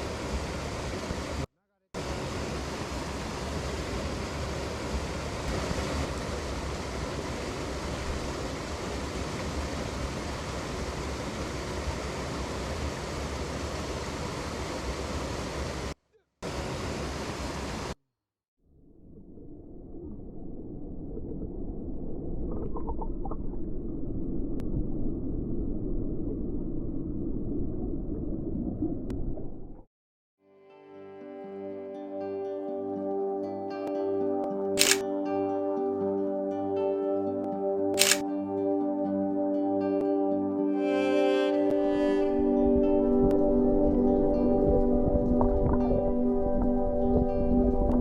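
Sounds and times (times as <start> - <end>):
mountain stream rushing: 2.0 - 18.0.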